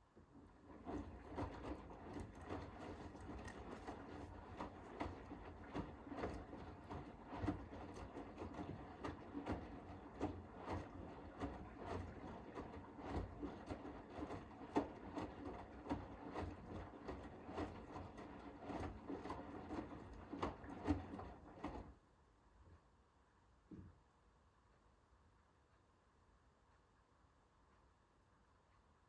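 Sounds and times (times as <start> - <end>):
washing machine motor hum: 0.1 - 22.0.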